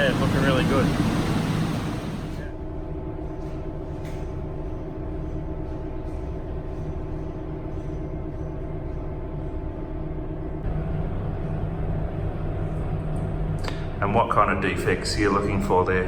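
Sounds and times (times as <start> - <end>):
machinery drone: 0.0 - 2.6.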